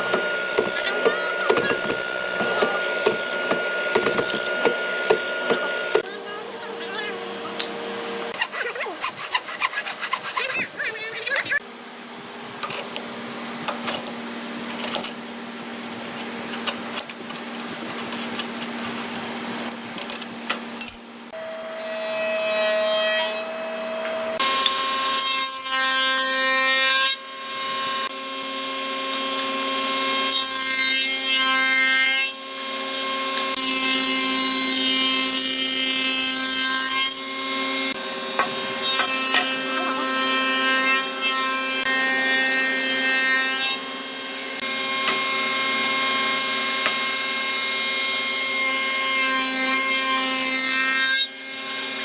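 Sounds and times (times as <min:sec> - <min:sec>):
electric power tool working hardwood: 0:00.0 - 0:06.1, 0:24.4 - 0:26.8.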